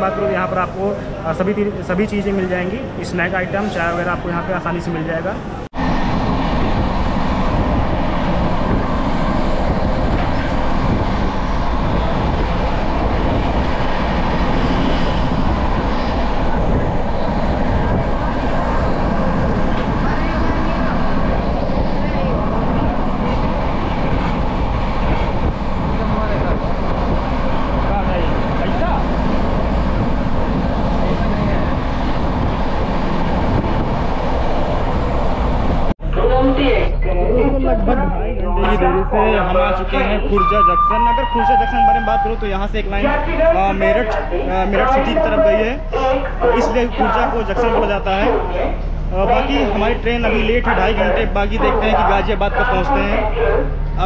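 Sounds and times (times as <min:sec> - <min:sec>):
train wheels rumbling on track: 0:00.0 - 0:36.0
wind rushing: 0:05.3 - 0:54.0.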